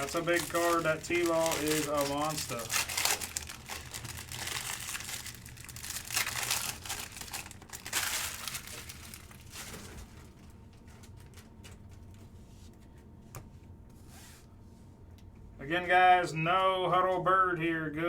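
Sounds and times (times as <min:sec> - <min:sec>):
plastic wrapping crinkling and tearing: 0:00.0 - 0:11.8.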